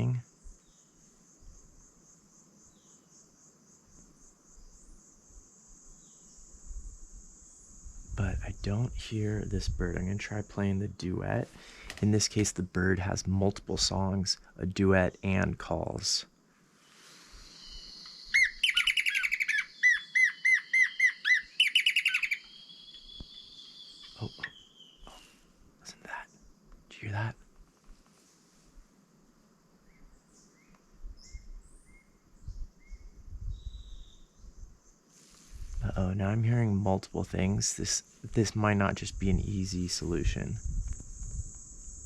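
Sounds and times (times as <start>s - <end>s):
recorded birdsong through phone speaker: 0.0s - 0.3s, 8.2s - 11.4s, 12.0s - 16.2s, 17.7s - 27.5s
insects and frogs calling: 0.0s - 42.0s.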